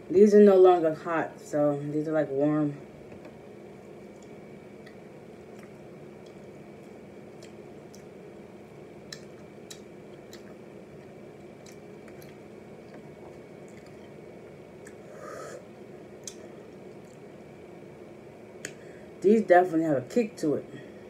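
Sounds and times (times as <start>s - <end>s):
low room hum: 0.0s - 21.0s
person chewing: 4.0s - 8.2s, 9.0s - 14.2s, 14.8s - 15.3s, 16.2s - 17.3s.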